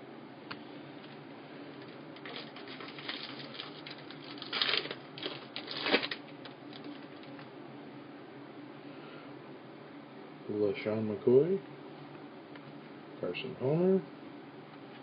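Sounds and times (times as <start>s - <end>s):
card pack crinkling and clicking: 1.8s - 7.5s.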